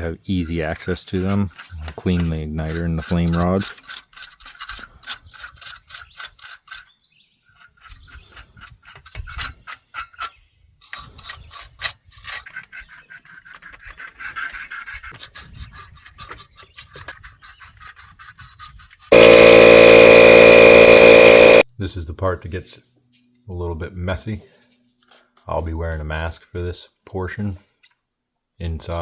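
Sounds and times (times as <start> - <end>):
brush scrubbing metal rods: 0.3 - 6.9
motor starting: 19.1 - 21.6.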